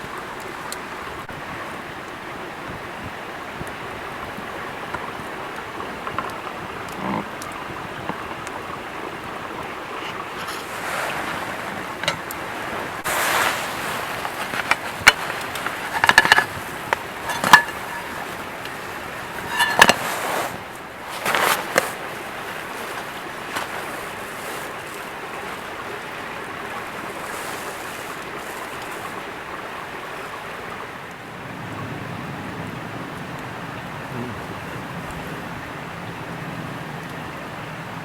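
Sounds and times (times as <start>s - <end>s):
metal cookware clinking: 10.0s - 12.4s, 13.5s - 20.2s.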